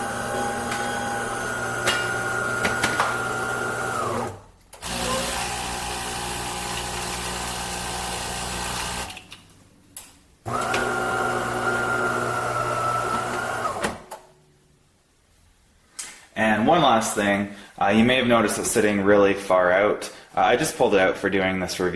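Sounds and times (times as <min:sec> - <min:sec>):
espresso machine motor whine: 0:00.0 - 0:09.2, 0:10.5 - 0:13.8.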